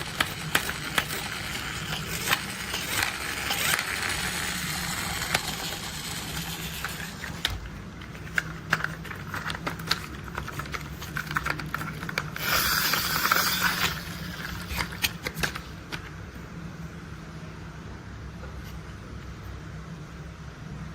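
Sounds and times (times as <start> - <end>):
plastic toys rattling: 0.0 - 15.7
plastic toys clicking and knocking: 0.0 - 16.0.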